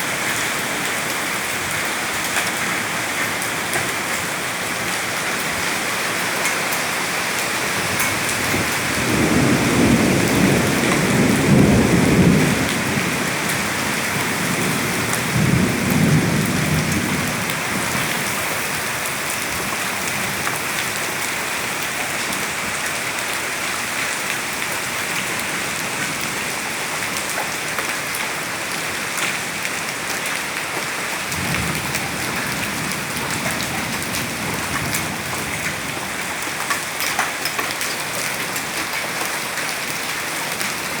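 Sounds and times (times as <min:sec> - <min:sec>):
heavy rain pouring: 0:00.0 - 0:41.0
raindrops hitting hard surfaces: 0:00.0 - 0:41.0
thunder rumbling: 0:07.8 - 0:19.7, 0:31.2 - 0:36.5.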